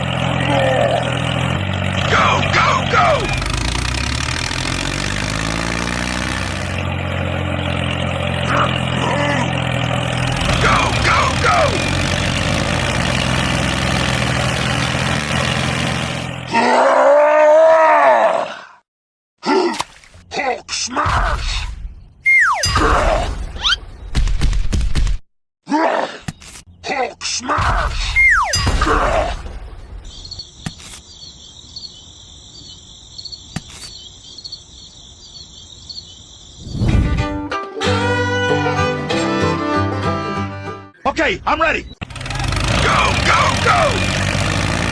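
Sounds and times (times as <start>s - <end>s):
engine running: 0.0s - 16.5s, 42.0s - 44.9s
crickets chirping: 30.1s - 36.9s.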